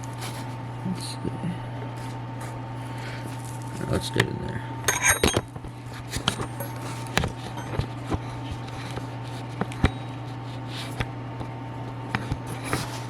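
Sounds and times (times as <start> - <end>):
low background hum: 0.0 - 13.0
metal tools clicking and tapping: 4.9 - 5.5, 6.1 - 8.2.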